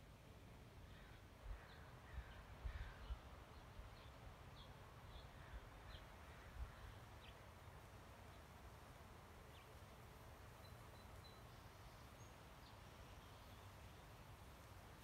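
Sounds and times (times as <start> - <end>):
faint birds chirping: 9.4 - 15.0.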